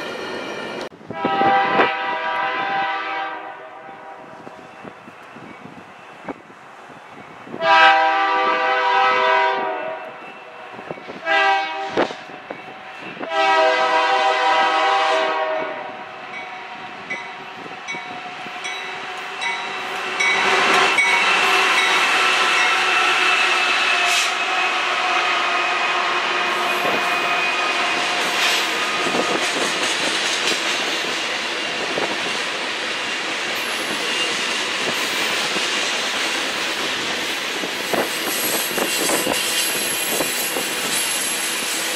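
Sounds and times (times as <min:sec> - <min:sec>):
train wheels rumbling: 0:00.0 - 0:41.9
locomotive air horn blasts: 0:01.1 - 0:04.3, 0:07.5 - 0:10.3, 0:11.1 - 0:12.3, 0:13.2 - 0:16.2, 0:20.4 - 0:29.4
rail clicks: 0:04.4 - 0:07.6, 0:26.4 - 0:41.9
faint high wheel squeal: 0:33.6 - 0:35.4.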